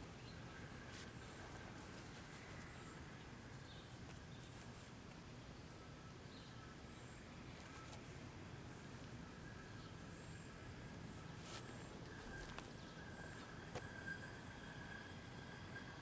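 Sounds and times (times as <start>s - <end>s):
low steady background rumble: 0.0s - 16.0s
faint high bird chirps: 9.1s - 16.0s.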